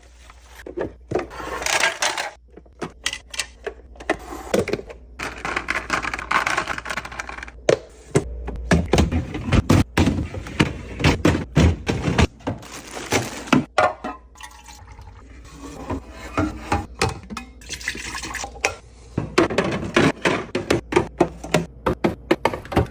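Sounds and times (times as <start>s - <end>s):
liquid pouring into containers: 14.3s - 15.5s, 17.6s - 18.6s.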